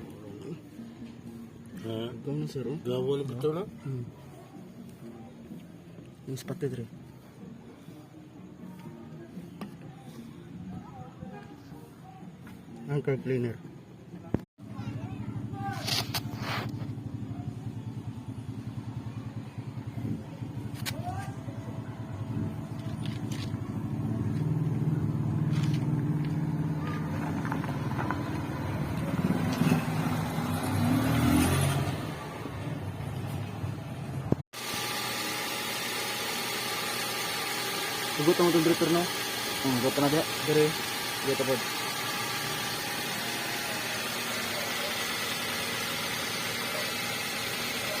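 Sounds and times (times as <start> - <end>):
car engine running: 21.6 - 48.0
car engine idling: 35.4 - 48.0.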